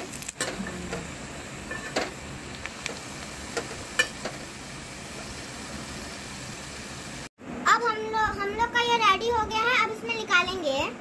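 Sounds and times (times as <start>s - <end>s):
potatoes frying in oil: 0.0s - 7.3s.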